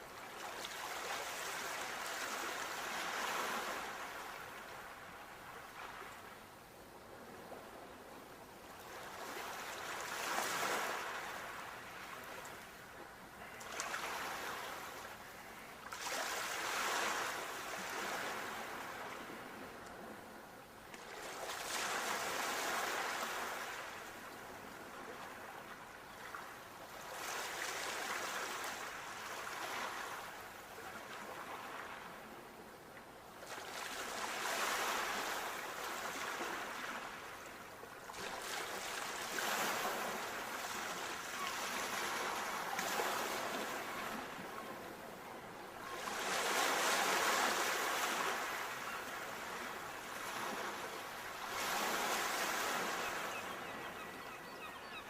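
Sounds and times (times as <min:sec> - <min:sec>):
ocean waves breaking on shore: 0:00.0 - 0:08.1, 0:08.7 - 0:32.6, 0:33.4 - 0:55.0.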